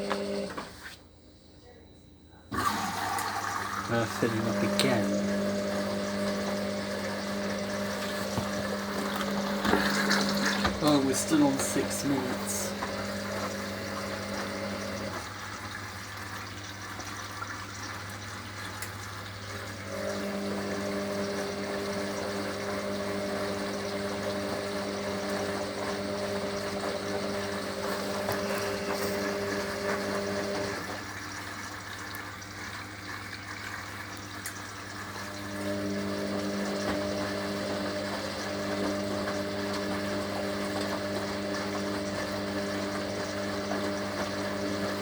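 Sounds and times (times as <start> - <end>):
water rushing into washing machine: 0.0 - 0.7, 2.5 - 45.0
higher motor hum: 2.5 - 17.1, 19.0 - 31.6.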